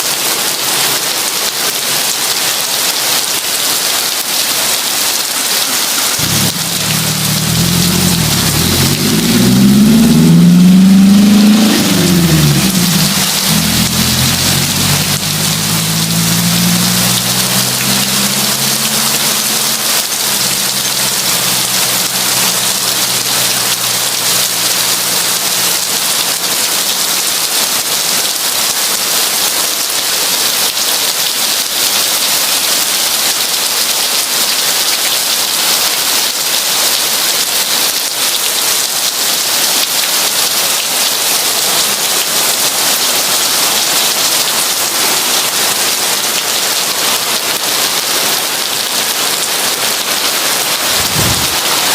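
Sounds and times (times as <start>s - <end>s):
heavy rain pouring: 0.0s - 51.9s
low rumble: 6.2s - 24.4s, 50.8s - 51.9s.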